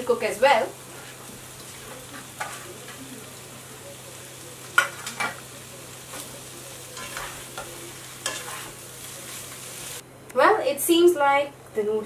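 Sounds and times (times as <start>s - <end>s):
food sizzling in a pan: 0.0s - 10.0s
metal turner scraping a pan: 0.8s - 3.1s, 6.9s - 9.4s.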